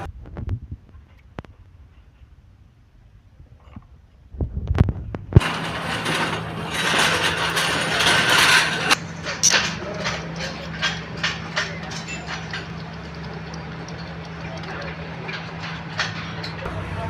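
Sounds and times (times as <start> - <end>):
engine clattering and ticking: 5.4 - 17.0.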